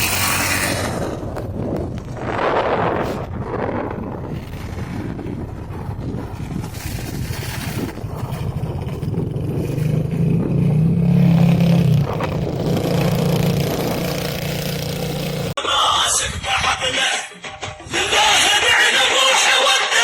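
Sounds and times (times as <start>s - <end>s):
vehicle engine humming: 0.0s - 2.2s, 4.4s - 15.6s
noisy rumble: 0.0s - 17.1s.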